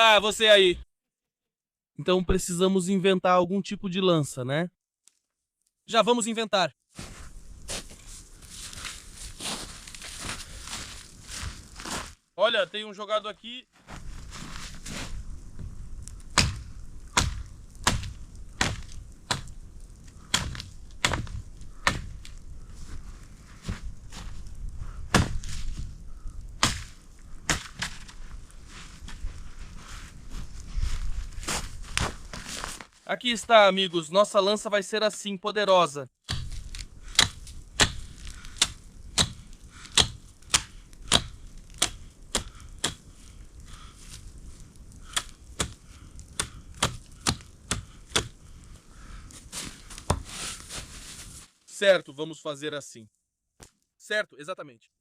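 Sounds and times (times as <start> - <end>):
blade chopping wooden stick: 17.2 - 19.5, 36.3 - 43.0, 46.4 - 48.3.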